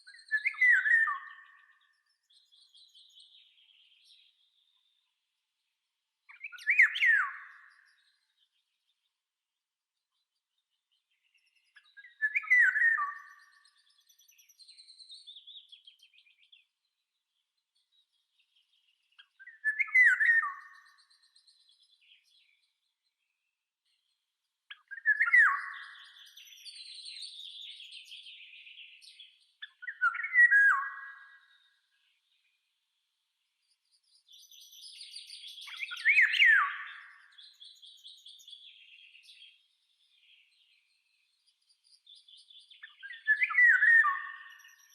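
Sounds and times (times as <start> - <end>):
songbird call phrases: 0.0 - 5.2, 6.2 - 9.2, 10.2 - 32.8, 33.6 - 44.9.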